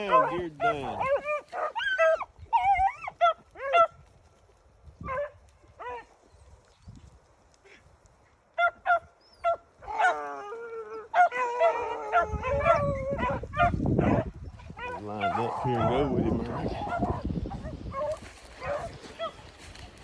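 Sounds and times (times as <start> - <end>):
beagles baying and yelping: 0.0 - 4.2, 5.0 - 6.5, 8.5 - 19.8.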